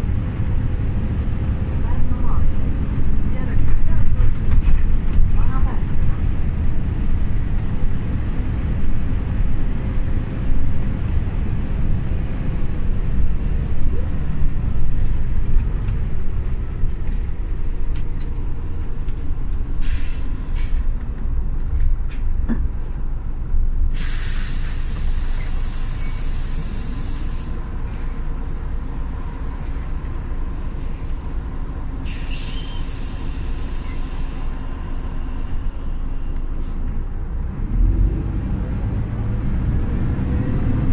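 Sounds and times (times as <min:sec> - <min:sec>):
bus engine running: 0:00.0 - 0:40.9
compressed-air hiss: 0:24.0 - 0:27.6.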